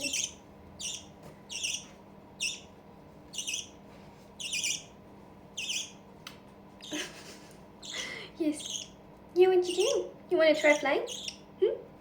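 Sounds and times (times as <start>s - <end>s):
young budgerigar squawking: 0.0s - 2.7s, 3.3s - 3.8s, 4.4s - 4.9s, 5.6s - 6.0s, 7.8s - 9.0s, 9.7s - 11.5s.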